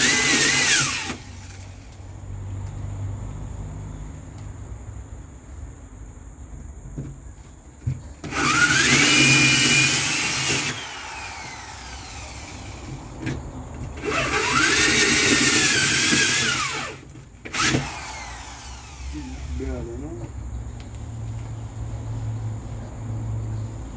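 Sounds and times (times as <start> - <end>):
electric drill boring into metal: 0.0 - 1.7, 8.2 - 13.4, 14.0 - 19.9.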